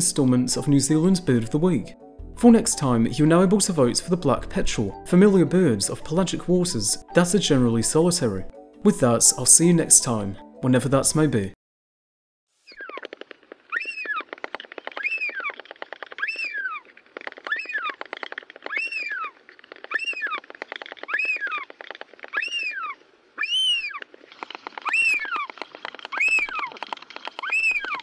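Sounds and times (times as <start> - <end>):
bird rising and falling call: 12.7 - 13.1, 13.7 - 28.0.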